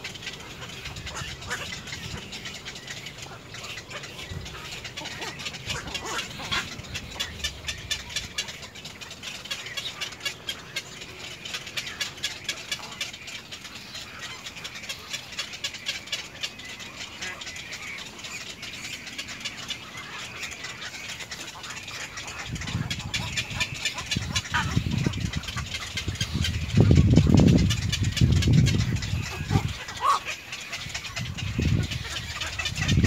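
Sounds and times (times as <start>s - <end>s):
birds chattering in dry clicks: 0.0s - 33.0s.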